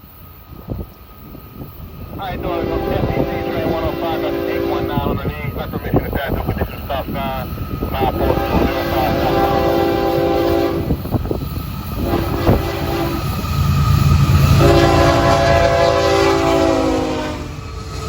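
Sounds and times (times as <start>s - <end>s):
locomotive engine rumbling: 0.0s - 18.0s
locomotive air horn: 2.4s - 5.2s, 8.2s - 11.0s, 12.0s - 13.4s, 14.5s - 17.6s.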